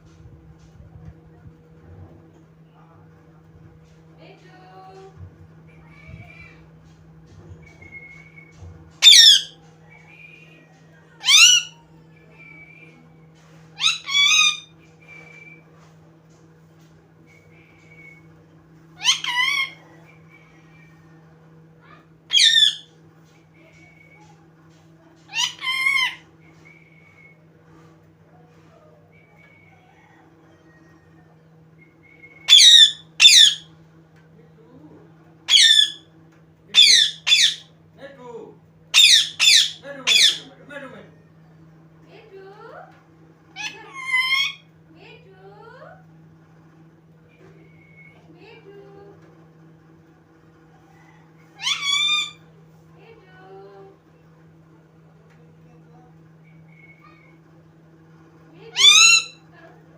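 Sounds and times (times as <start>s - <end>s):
faint short whistles: 7.6s - 8.6s, 14.9s - 15.8s, 17.3s - 18.4s, 29.1s - 29.9s, 31.8s - 32.5s, 56.4s - 57.3s
parrot harsh calls: 9.0s - 9.6s, 11.2s - 11.9s, 13.8s - 14.8s, 19.0s - 20.9s, 21.9s - 22.9s, 25.3s - 26.3s, 32.4s - 33.7s, 35.5s - 36.1s, 36.7s - 37.7s, 38.9s - 40.6s, 43.5s - 44.7s, 51.0s - 52.5s, 58.7s - 59.4s.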